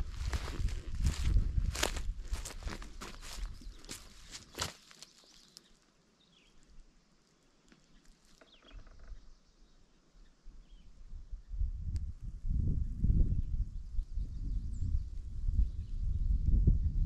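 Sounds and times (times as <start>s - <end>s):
footstep on trail: 0.0s - 5.8s
faint bird chirps: 3.1s - 11.7s.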